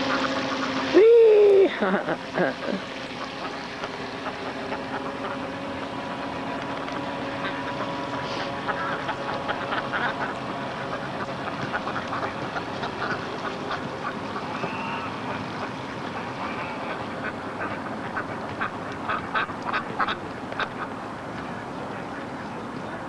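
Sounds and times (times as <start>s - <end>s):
ducks quacking: 0.0s - 22.2s
steady background hum: 0.0s - 23.0s.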